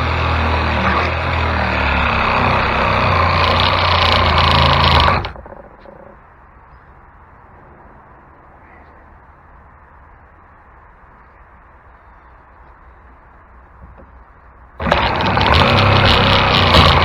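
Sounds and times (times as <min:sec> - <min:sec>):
electric power saw cutting: 0:00.0 - 0:05.6, 0:14.8 - 0:17.0.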